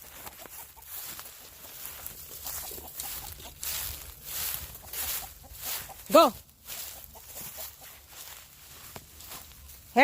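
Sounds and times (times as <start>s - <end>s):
rustling in dry grass: 0.0s - 10.0s.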